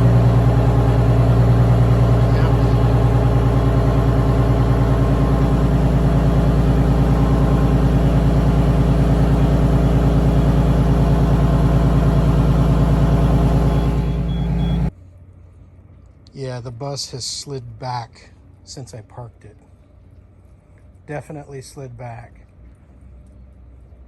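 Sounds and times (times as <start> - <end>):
bus engine cold start: 0.0 - 14.9.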